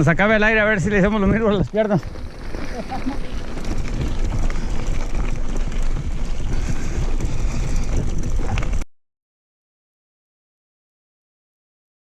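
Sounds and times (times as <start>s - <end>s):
constant low rumble: 0.0s - 8.8s
wind buffeting microphone: 0.4s - 8.8s.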